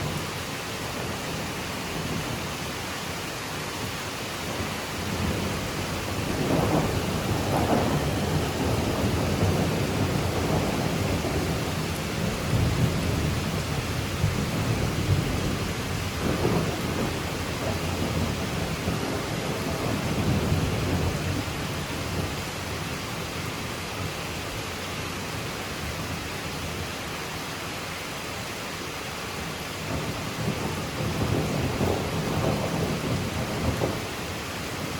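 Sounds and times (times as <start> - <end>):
rain falling on foliage: 0.0 - 34.9
thunder rumbling: 4.4 - 22.5, 29.8 - 34.9.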